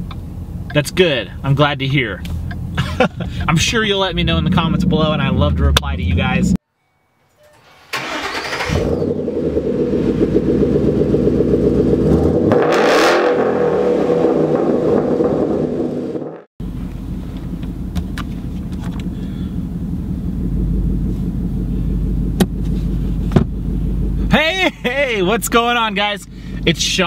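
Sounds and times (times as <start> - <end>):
car engine revving: 2.2 - 6.6, 8.0 - 27.0
car cabin rumble: 16.6 - 27.0.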